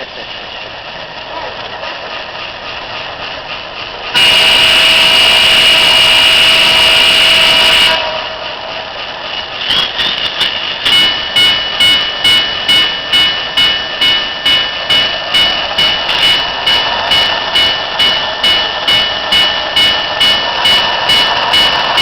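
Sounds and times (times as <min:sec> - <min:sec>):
model locomotive engine running: 0:00.0 - 0:22.0
locomotive horn blast: 0:04.1 - 0:08.6
short repeated tones: 0:10.8 - 0:22.0.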